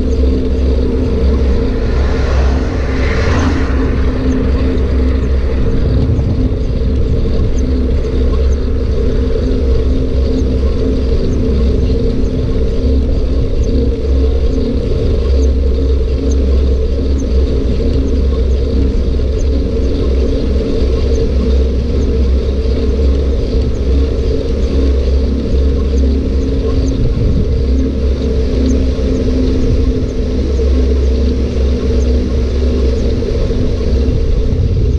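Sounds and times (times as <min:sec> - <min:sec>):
wind buffeting microphone: 0:00.0 - 0:18.0, 0:25.9 - 0:34.9
steady hum: 0:00.0 - 0:34.9.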